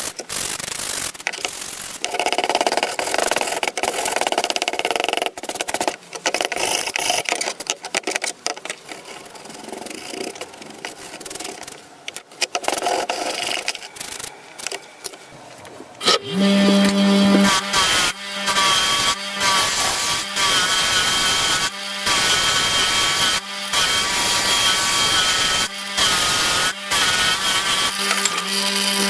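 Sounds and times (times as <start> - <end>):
harsh scraping of rusty metal: 12.5 - 21.6.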